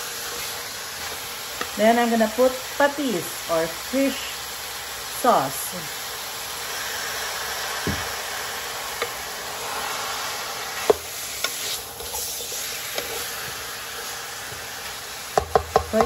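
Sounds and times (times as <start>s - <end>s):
chicken wings sizzling in pot: 0.0s - 16.0s
wooden spoon knocking on pot: 15.3s - 16.0s.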